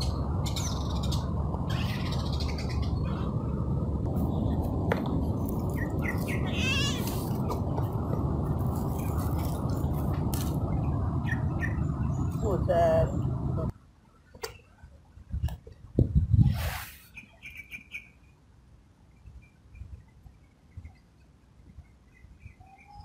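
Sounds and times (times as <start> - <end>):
low outdoor rumble: 0.0 - 14.2.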